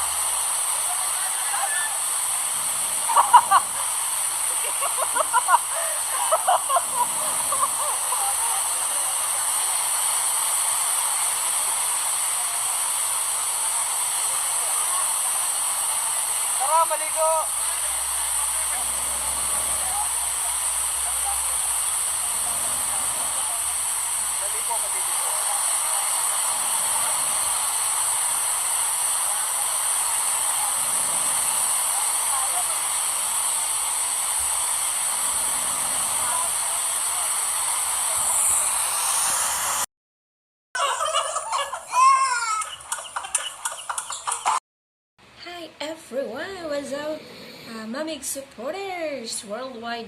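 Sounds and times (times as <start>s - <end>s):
waterfall rushing: 0.0s - 10.2s, 14.5s - 38.9s
bright high hiss: 0.0s - 39.9s.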